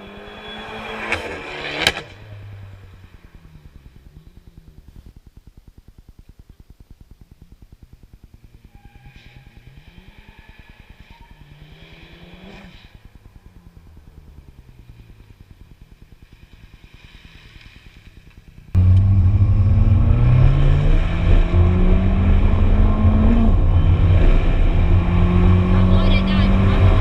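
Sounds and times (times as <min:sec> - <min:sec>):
car engine revving and accelerating: 0:08.8 - 0:15.4, 0:18.7 - 0:27.0.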